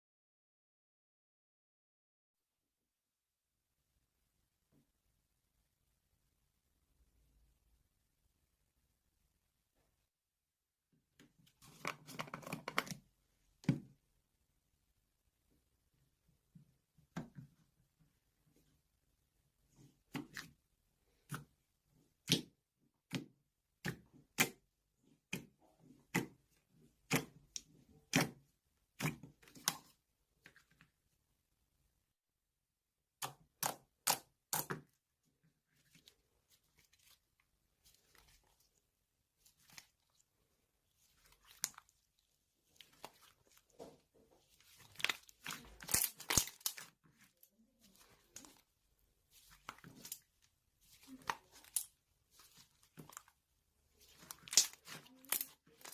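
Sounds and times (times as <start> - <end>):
rustling and crinkling handling: 35.7 - 55.9.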